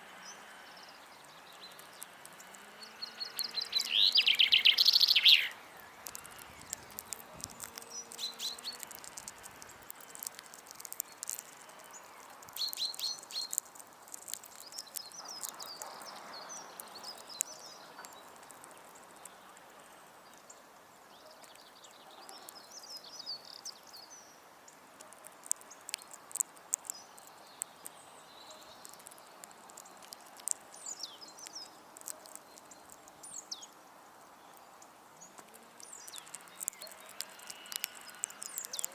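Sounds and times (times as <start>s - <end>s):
small birds chirping: 0.0s - 38.9s
sharp taps and clicks: 5.8s - 16.2s, 25.0s - 27.9s, 28.8s - 33.2s, 35.4s - 38.9s.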